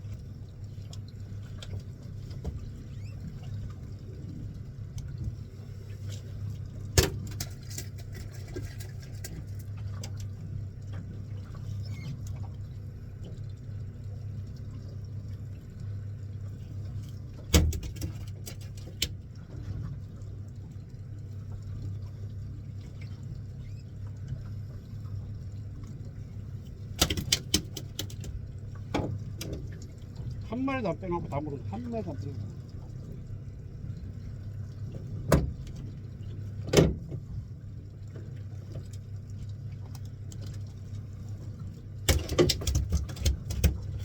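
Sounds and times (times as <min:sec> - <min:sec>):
boat engine humming: 0:00.0 - 0:44.0
knocks and clatters on board: 0:17.5 - 0:19.0, 0:27.0 - 0:28.3, 0:42.0 - 0:44.0.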